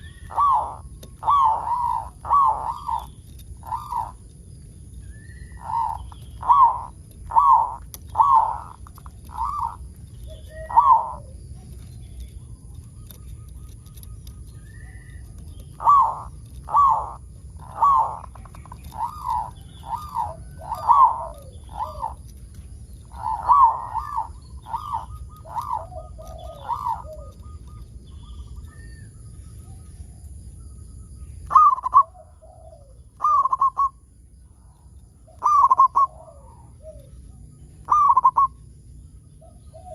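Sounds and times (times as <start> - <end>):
dove cooing: 0.0 - 29.2, 31.4 - 34.1, 34.7 - 38.7, 39.3 - 39.9
low steady hum: 0.0 - 39.9.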